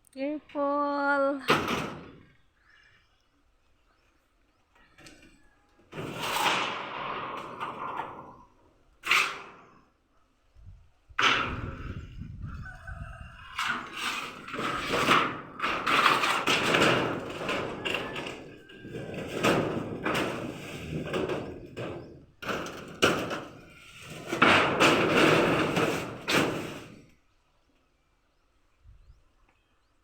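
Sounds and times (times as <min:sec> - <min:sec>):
rasping scraping strokes: 0:09.0 - 0:09.9.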